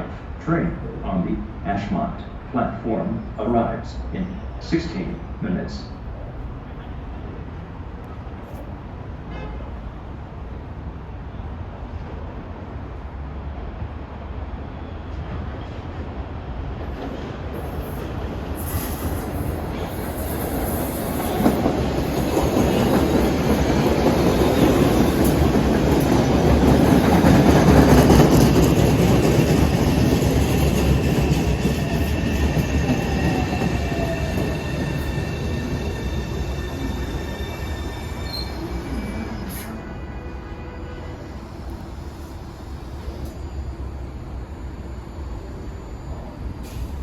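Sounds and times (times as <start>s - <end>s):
train rumble: 9.8s - 47.0s
high wheel squeal: 30.9s - 39.8s.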